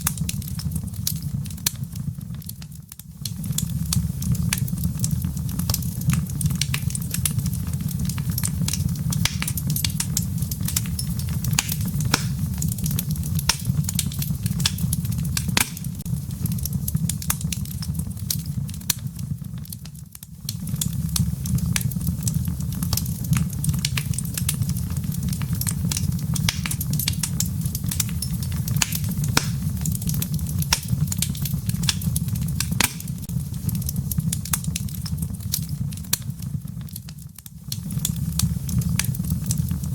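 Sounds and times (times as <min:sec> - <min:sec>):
logs crackling in fireplace: 0:00.0 - 0:39.9
steady low rumble: 0:09.0 - 0:16.9, 0:26.4 - 0:34.3.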